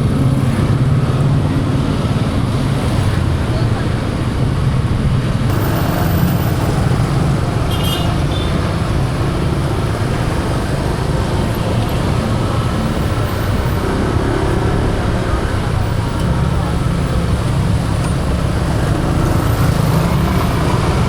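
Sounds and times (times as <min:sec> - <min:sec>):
motorbike engine and road noise: 0:00.0 - 0:21.0
brief high-pitched tone: 0:05.5 - 0:07.1.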